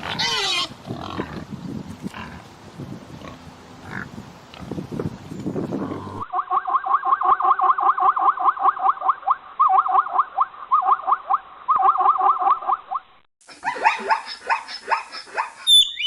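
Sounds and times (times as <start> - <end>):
animal chirping: 13.6 - 16.0.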